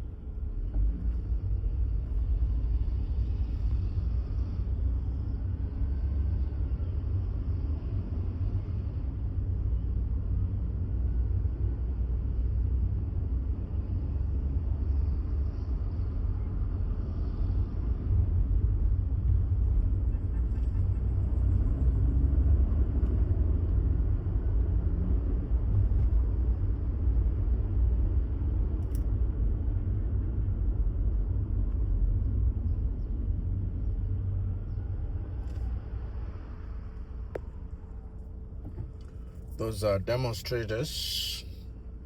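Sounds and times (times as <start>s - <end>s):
vehicle road and engine noise: 0.0s - 42.0s.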